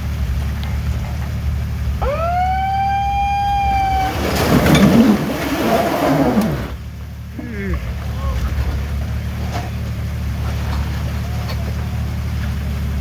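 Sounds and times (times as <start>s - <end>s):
person crying out rising pitch: 2.0s - 5.2s
wavering voices: 2.0s - 8.6s.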